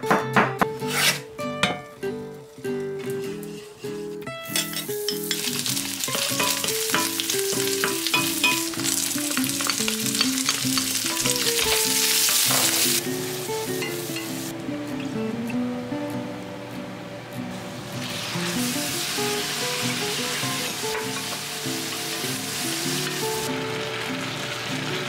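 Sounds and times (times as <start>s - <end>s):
plucked background melody: 0.0s - 25.0s
spatula scraping a wok: 0.8s - 1.3s, 3.2s - 6.9s
food sizzling in a wok: 3.1s - 15.3s, 17.5s - 25.0s.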